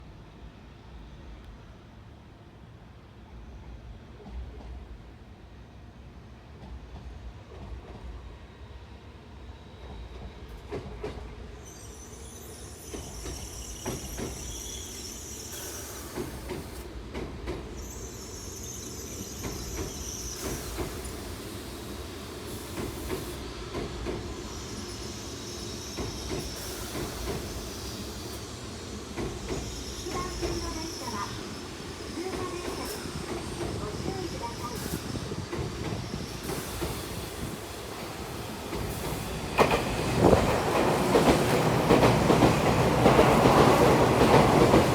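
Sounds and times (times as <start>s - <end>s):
train wheels squealing: 8.5s - 17.0s, 17.6s - 44.9s.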